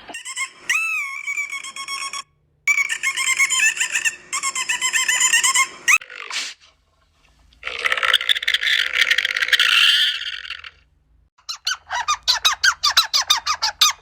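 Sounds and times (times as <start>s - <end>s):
dolphin whistling and squeaking: 0.1s - 6.0s, 11.4s - 14.0s.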